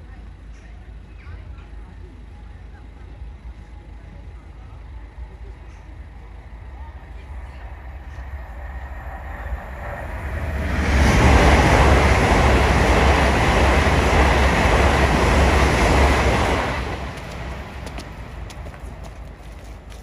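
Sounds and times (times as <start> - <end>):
train rushing past: 6.0 - 20.0.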